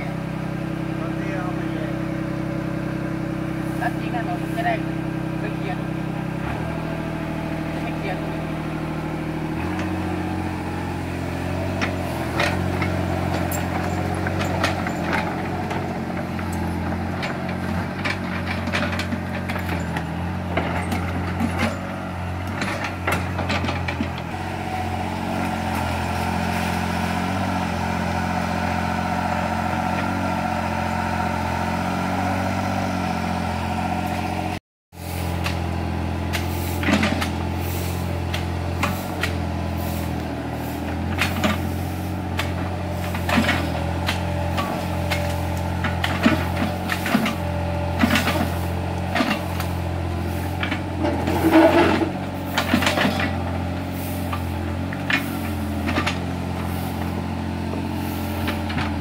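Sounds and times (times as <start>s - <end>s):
excavator diesel engine running: 0.0s - 59.0s
metal clanks and knocks: 11.8s - 24.3s.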